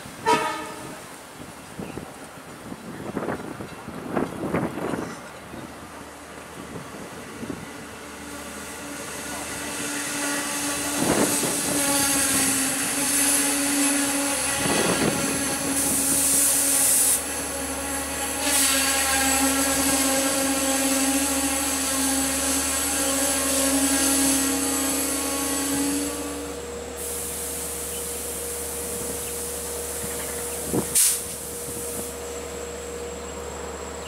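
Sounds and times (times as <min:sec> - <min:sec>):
diesel train rolling to a stop: 0:00.0 - 0:34.0
burst of hiss: 0:09.7 - 0:17.4, 0:18.2 - 0:20.7, 0:27.0 - 0:32.2.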